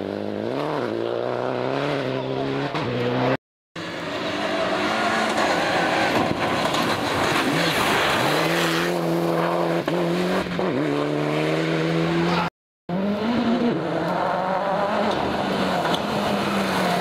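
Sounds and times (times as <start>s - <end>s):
rally car engine at full throttle: 0.0s - 17.0s
tyres on loose gravel: 5.0s - 9.2s.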